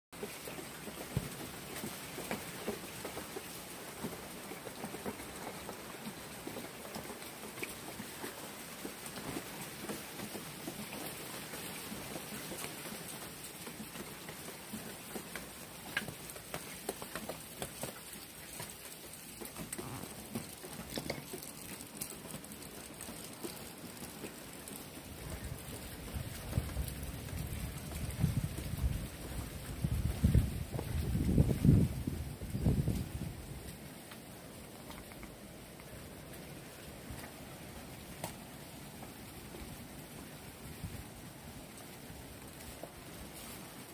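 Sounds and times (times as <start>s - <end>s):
raindrops pattering on surfaces: 0.2s - 43.9s
wind buffeting microphone: 25.1s - 33.6s.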